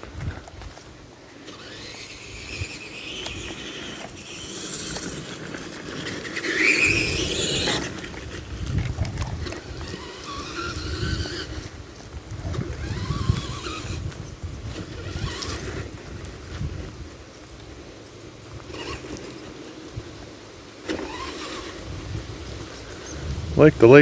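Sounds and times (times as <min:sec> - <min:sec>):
tyres crunching through brush: 0:00.0 - 0:24.0
toy truck motor whining: 0:01.4 - 0:16.8, 0:18.6 - 0:19.3, 0:20.8 - 0:23.2.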